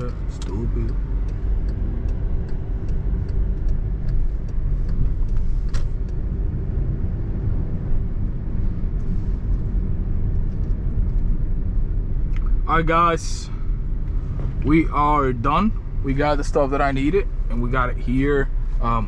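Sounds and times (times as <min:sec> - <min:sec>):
light regular ticks: 0:00.0 - 0:06.2
car engine and road rumble: 0:00.0 - 0:19.0.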